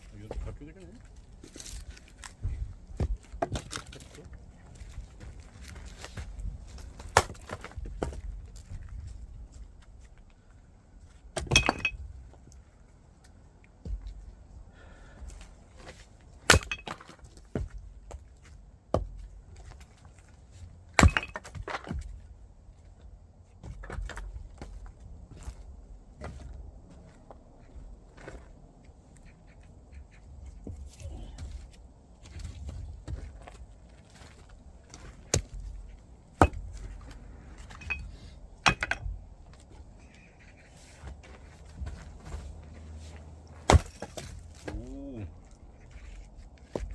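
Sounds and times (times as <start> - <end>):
firewood splitting strikes: 2.9 - 4.2, 5.6 - 8.8, 11.3 - 12.0, 16.4 - 17.7, 20.9 - 22.1, 36.4 - 39.6, 43.5 - 45.2
axe chopping wood: 7.0 - 8.2, 16.4 - 17.7, 21.0 - 22.0, 36.4 - 36.8, 43.6 - 45.0
rattle of small wood knocks: 11.4 - 12.1, 16.5 - 18.2, 21.0 - 22.2, 37.6 - 39.7.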